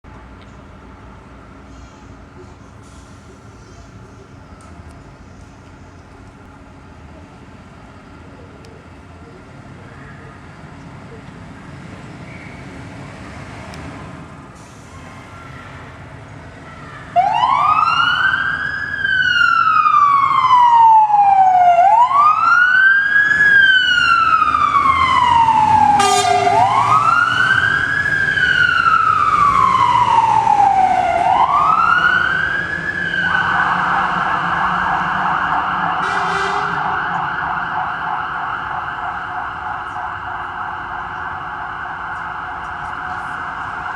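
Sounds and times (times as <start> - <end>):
fire engine siren wailing: 17.0 - 43.9
truck engine rumbling: 23.0 - 43.9
horn blasts: 26.0 - 26.9, 36.0 - 37.0.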